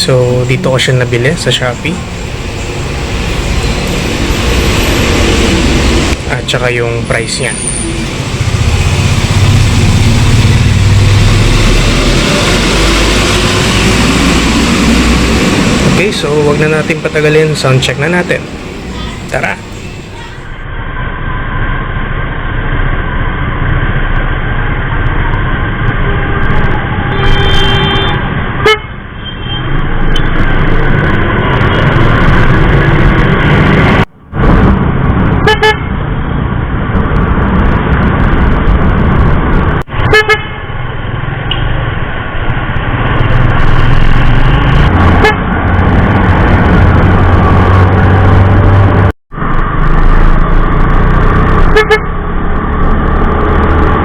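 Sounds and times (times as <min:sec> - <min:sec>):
motorcycle electric horns blasting: 0:25.8 - 0:29.8, 0:35.4 - 0:36.0, 0:40.0 - 0:40.8, 0:44.1 - 0:45.5, 0:51.6 - 0:52.2.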